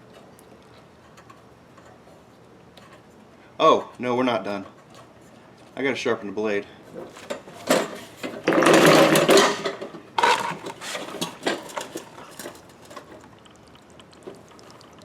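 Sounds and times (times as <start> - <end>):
push mower clattering: 6.9 - 13.2.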